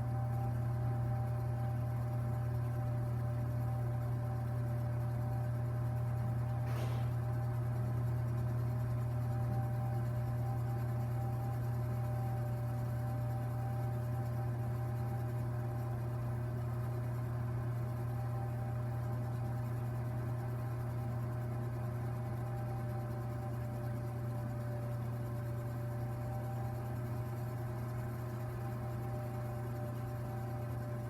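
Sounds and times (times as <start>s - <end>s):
fireplace droning hum: 5.8s - 7.9s.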